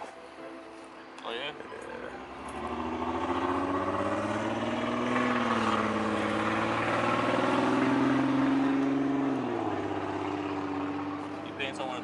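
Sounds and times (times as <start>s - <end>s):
vehicle engine running: 1.6s - 12.0s.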